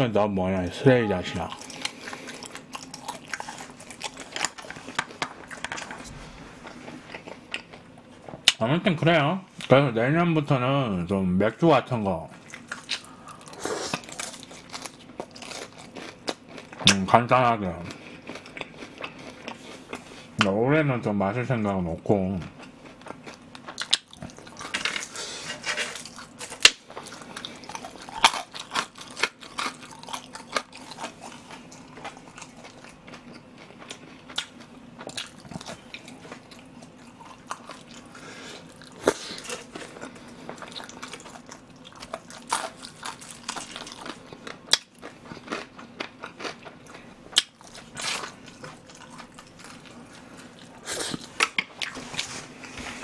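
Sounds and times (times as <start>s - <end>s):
person chewing with wet smacks: 22.5s - 24.7s, 26.1s - 52.3s.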